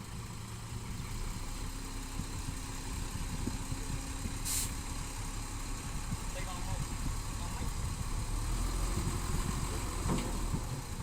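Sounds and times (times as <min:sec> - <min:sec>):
diesel engine rumbling: 0:00.0 - 0:11.0
short hiss: 0:04.4 - 0:04.8.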